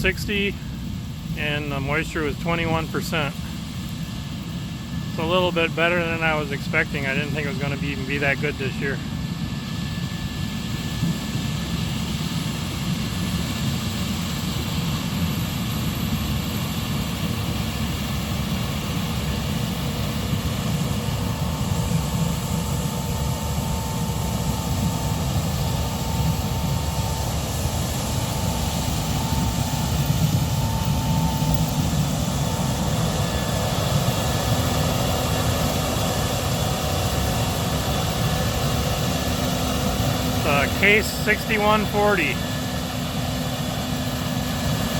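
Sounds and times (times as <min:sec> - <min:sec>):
combine engine rumble: 0:00.0 - 0:11.4, 0:20.7 - 0:44.9
faint steady whine: 0:00.0 - 0:44.9.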